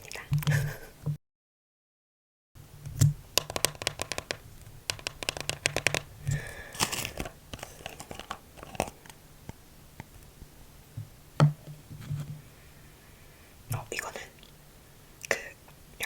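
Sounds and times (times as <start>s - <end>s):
sharp clicks and taps: 2.9s - 10.1s
plastic packaging crinkling: 3.4s - 9.2s.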